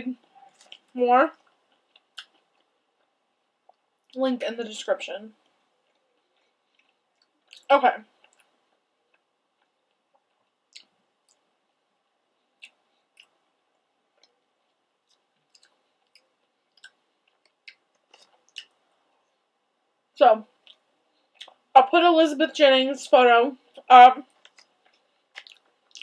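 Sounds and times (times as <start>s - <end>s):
faint chewing mouth clicks: 0.2s - 4.2s, 5.4s - 11.7s, 12.4s - 19.4s, 20.6s - 21.7s, 23.7s - 26.0s.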